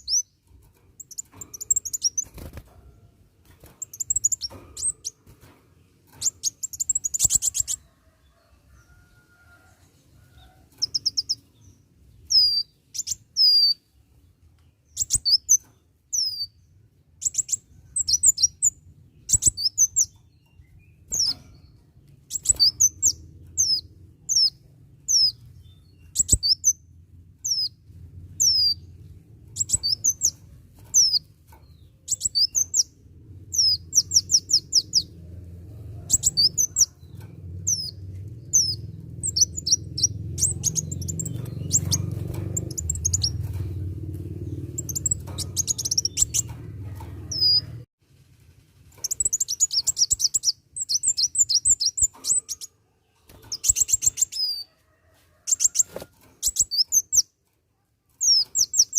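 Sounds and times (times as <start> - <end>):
low hum: 20.7 - 49.1
sunbird singing: 32.0 - 35.2, 37.6 - 46.5.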